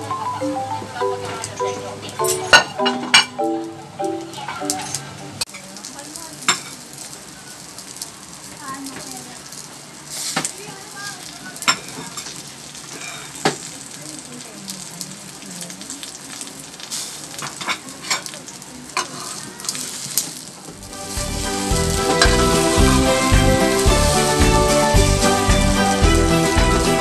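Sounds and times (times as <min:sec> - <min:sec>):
omelettes sizzling in oil: 0:02.0 - 0:27.0
music with a steady beat: 0:20.8 - 0:27.0.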